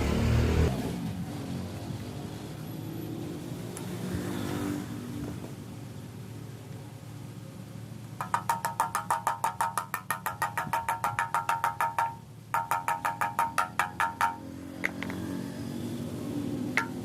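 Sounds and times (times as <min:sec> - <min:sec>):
rapid clicking: 0:08.2 - 0:15.1.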